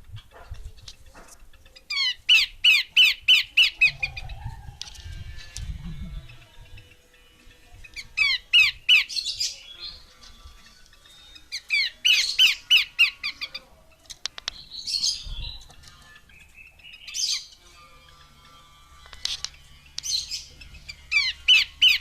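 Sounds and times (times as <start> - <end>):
bird chattering calls: 0.2 - 10.1, 10.7 - 17.6, 19.0 - 22.0
bird whistled notes: 7.9 - 10.0.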